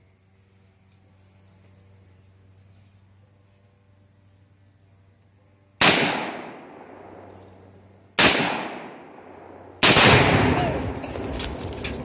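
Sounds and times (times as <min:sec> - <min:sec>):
rifle shots echoing: 0:05.8 - 0:11.9.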